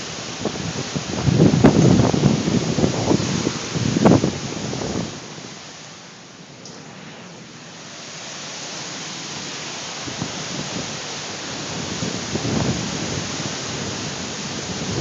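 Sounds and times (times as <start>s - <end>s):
wind gusts buffeting microphone: 0.0s - 5.4s, 10.0s - 15.0s
strong wind rushing: 0.0s - 5.5s, 10.0s - 15.0s.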